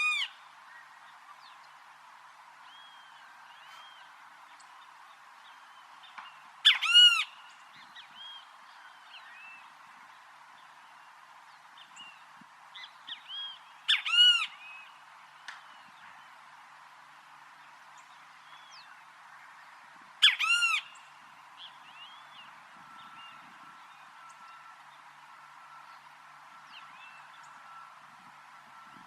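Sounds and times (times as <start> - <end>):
bird calling loud and harsh: 0.0 - 0.4, 6.6 - 7.5, 13.3 - 14.6, 20.2 - 21.0
steady background hiss: 0.0 - 29.0
soft bird chirps: 2.6 - 16.4.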